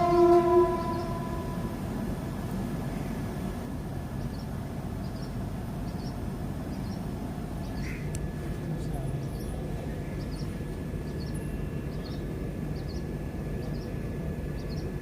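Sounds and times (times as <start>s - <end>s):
train rumbling past: 0.0s - 15.0s.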